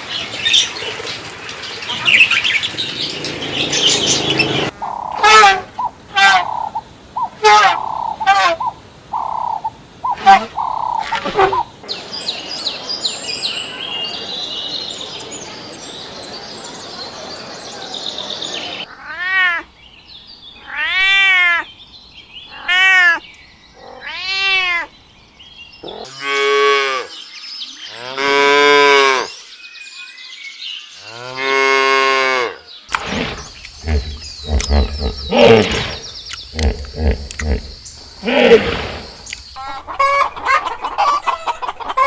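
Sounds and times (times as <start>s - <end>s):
cat meowing: 23.8s - 24.9s.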